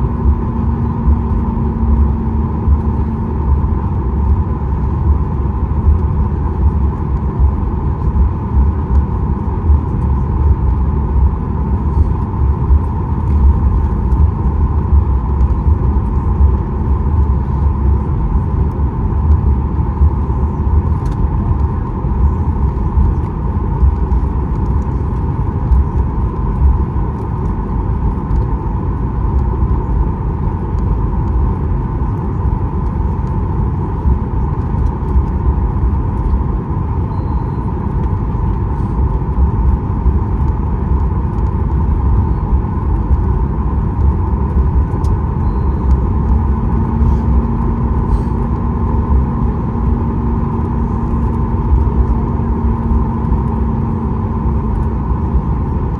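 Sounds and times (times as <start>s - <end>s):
steady low hum: 0.0s - 55.9s
jet engines idling: 37.0s - 53.6s.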